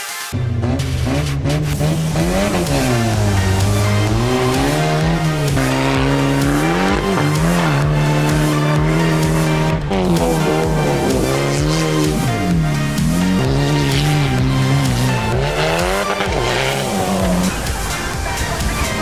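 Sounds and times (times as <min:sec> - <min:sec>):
background music: 0:00.0 - 0:19.0
racing vehicle engine revving: 0:00.3 - 0:19.0.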